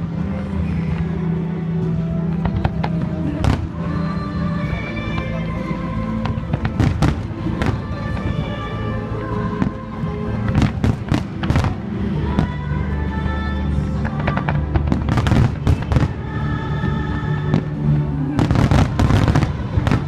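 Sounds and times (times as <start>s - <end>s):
music: 0.0s - 20.0s
fireworks bangs: 14.1s - 16.2s, 18.4s - 20.0s.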